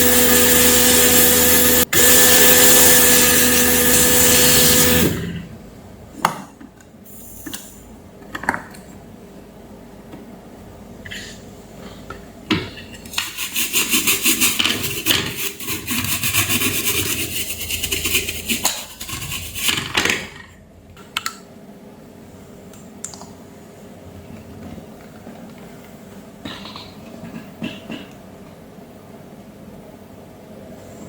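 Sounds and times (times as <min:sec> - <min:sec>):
rapid scraping strokes: 0:13.2 - 0:20.0.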